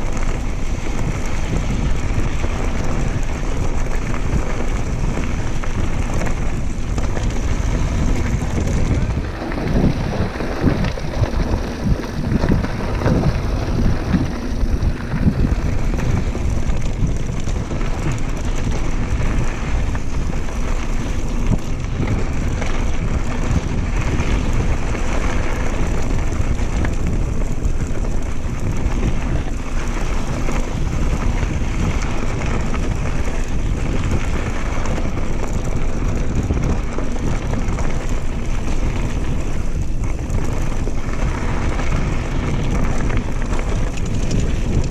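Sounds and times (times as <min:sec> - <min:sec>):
mountain bike rolling on dirt: 0:00.0 - 0:44.9
wind buffeting microphone: 0:00.0 - 0:44.9.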